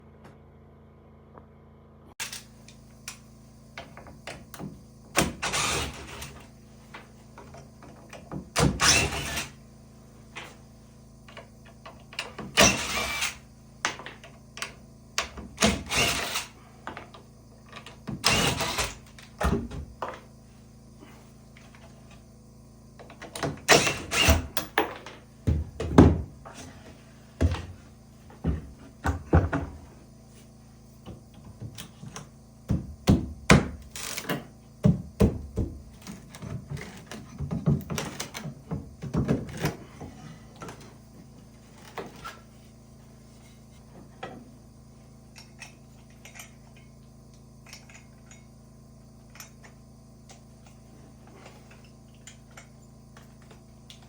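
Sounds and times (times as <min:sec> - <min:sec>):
wooden knocks and thuds: 0:24.8 - 0:26.5, 0:27.4 - 0:29.9, 0:31.0 - 0:33.8, 0:34.8 - 0:39.8.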